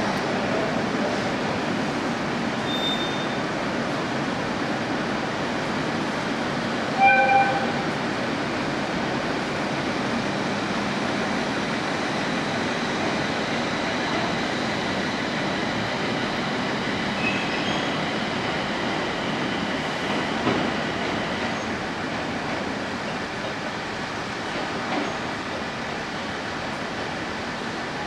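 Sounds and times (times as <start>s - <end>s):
train motors and wheels running: 0.0s - 28.0s
train horn blast: 7.0s - 7.9s.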